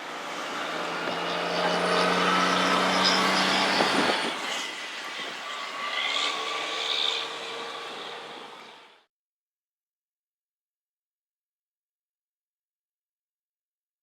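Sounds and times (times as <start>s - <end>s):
large vehicle engine hum: 0.0s - 9.1s.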